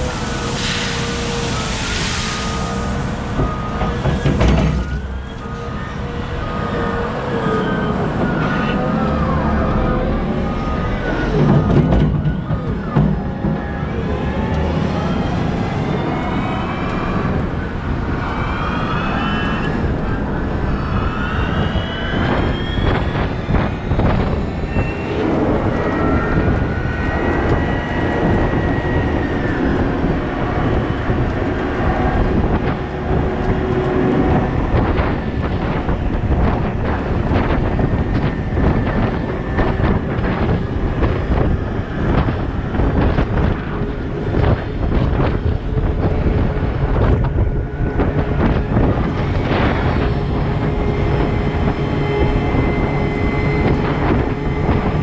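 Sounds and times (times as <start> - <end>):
diesel engine rumble with whines: 0.0 - 55.0
machinery knocks and rattles: 3.4 - 5.4.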